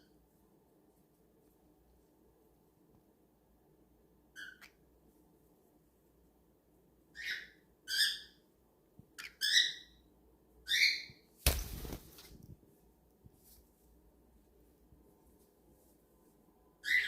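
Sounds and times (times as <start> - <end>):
cockatiel chirping: 4.3 - 4.8, 7.2 - 8.4, 9.2 - 9.9, 10.7 - 11.2.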